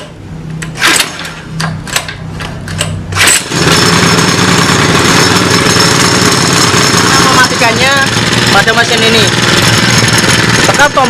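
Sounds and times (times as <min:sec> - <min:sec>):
recoil starter cord pulls: 0:00.6 - 0:11.0
small generator engine running: 0:02.8 - 0:11.0.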